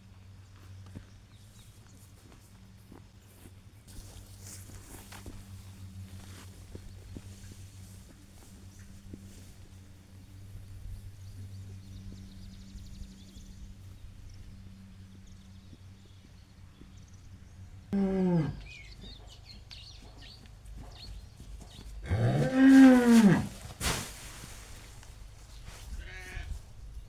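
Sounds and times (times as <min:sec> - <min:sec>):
cow mooing: 0:18.0 - 0:18.8, 0:22.0 - 0:23.6.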